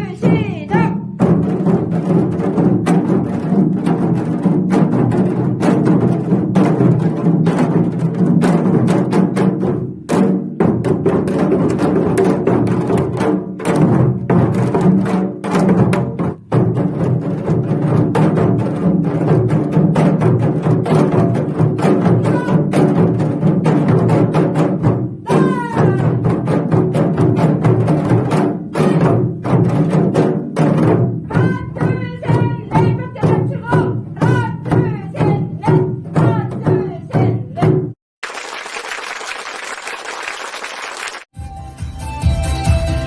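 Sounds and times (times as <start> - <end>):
drums struck: 0.1 - 38.0
clapping and applause: 38.2 - 41.4
backing music with a beat: 41.4 - 43.0.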